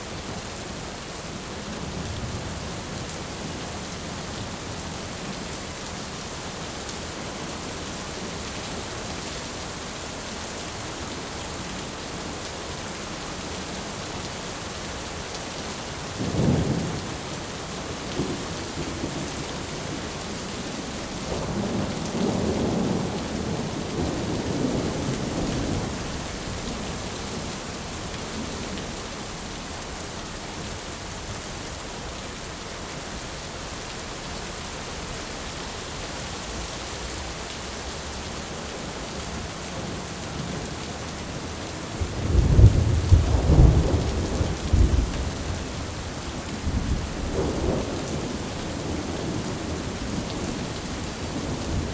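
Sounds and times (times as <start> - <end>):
heavy rain on a tin roof: 0.0 - 51.9
rolling thunder rumble: 41.5 - 51.9
thunder clap: 42.0 - 45.4.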